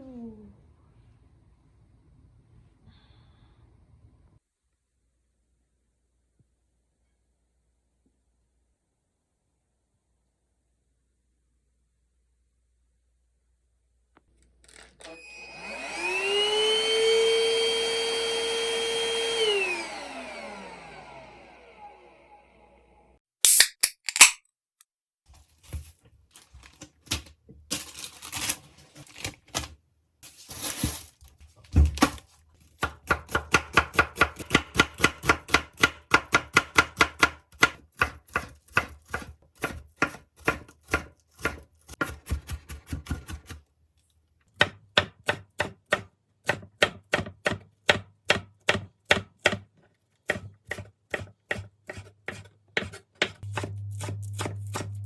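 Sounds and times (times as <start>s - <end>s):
knife chopping on cutting board: 32.8s - 43.6s, 44.6s - 55.0s.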